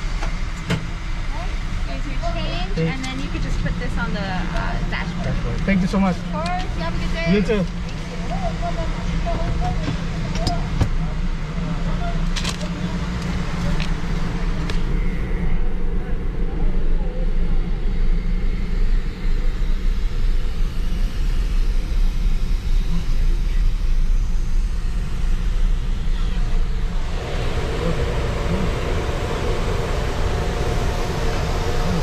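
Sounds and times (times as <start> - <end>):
car engine rumbling: 11.2 - 20.0, 24.2 - 32.0
steady hiss: 24.0 - 32.0.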